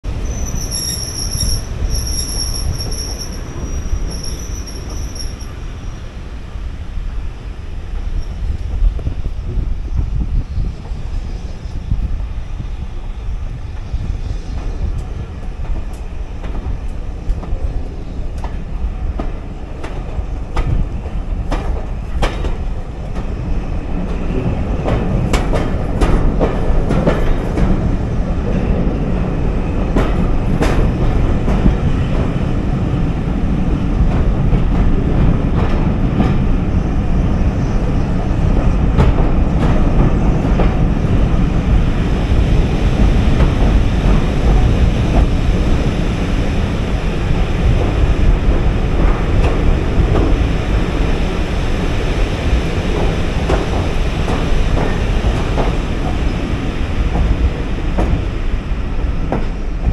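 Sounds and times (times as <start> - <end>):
train wheels rumbling in tunnel: 0.0 - 59.9
wheels clacking over rail joints: 47.3 - 58.5.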